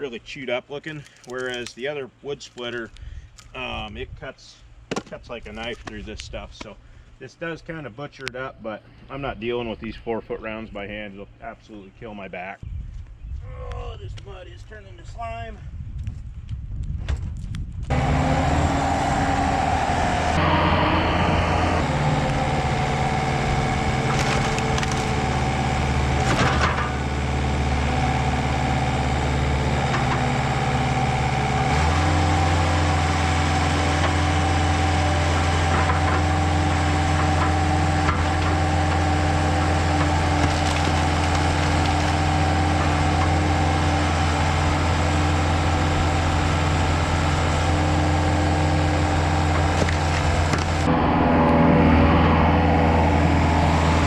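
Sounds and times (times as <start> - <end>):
wood cracking and splintering: 1.0 - 1.8, 22.2 - 28.0, 31.7 - 50.9
diesel engine under load: 17.9 - 54.0.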